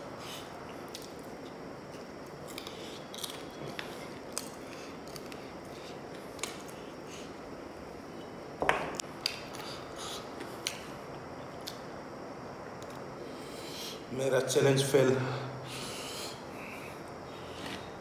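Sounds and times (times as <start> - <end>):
steady hiss: 0.0 - 18.0
person chewing: 0.4 - 6.9.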